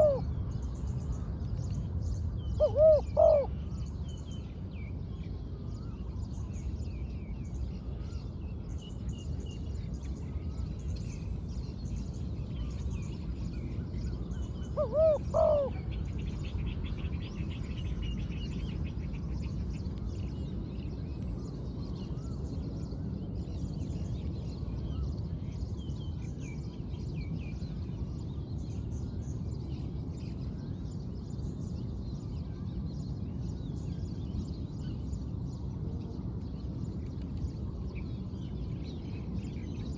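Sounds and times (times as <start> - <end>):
dove cooing: 0.0 - 0.3, 2.6 - 3.5, 14.8 - 15.8
steady low rumble: 0.0 - 39.9.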